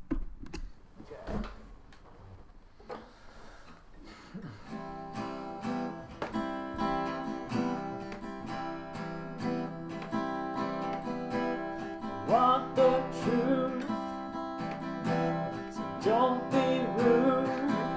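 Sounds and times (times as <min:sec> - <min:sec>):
acoustic guitar strumming: 0:04.6 - 0:17.9.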